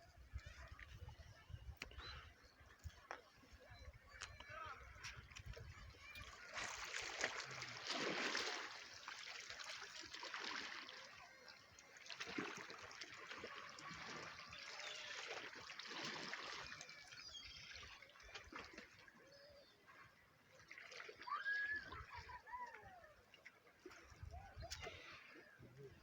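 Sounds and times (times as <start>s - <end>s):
small waves lapping and splashing: 0.0s - 26.0s.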